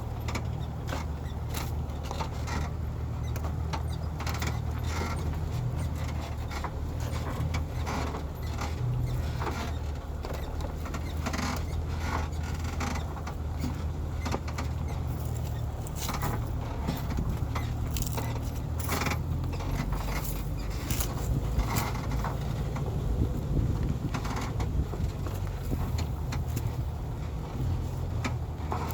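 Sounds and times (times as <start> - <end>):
truck body creaking and knocking: 0.0 - 28.9
truck engine running: 0.0 - 28.9.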